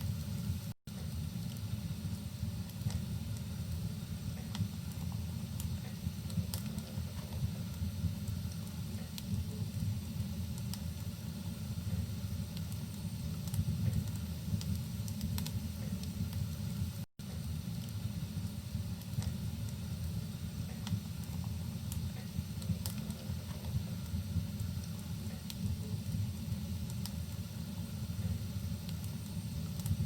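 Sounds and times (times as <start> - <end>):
steady low rumble: 0.0 - 30.0
wood fire crackling: 0.0 - 30.0
sharp pops and snaps: 1.4 - 11.2, 12.5 - 16.5, 17.8 - 27.5, 28.8 - 30.0.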